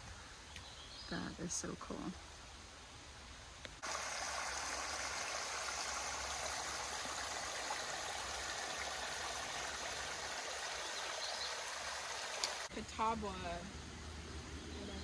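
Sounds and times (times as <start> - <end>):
creek water rushing: 3.8 - 14.9.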